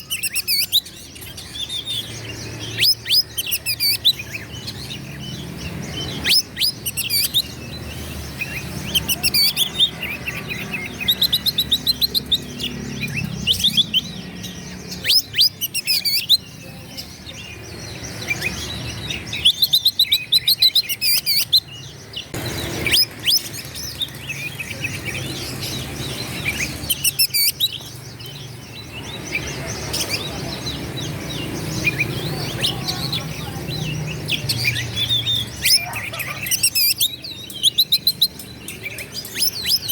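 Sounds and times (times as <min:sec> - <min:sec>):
bird singing whistles and trills: 0:00.0 - 0:16.6, 0:17.5 - 0:32.8.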